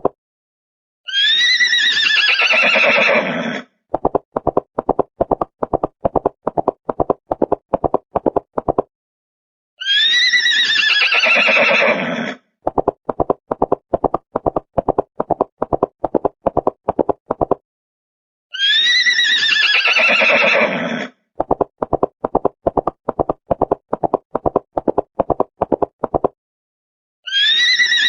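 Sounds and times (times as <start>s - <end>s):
horse whinnying: 1.1s - 3.7s, 9.8s - 12.4s, 18.6s - 21.2s, 27.3s - 28.0s.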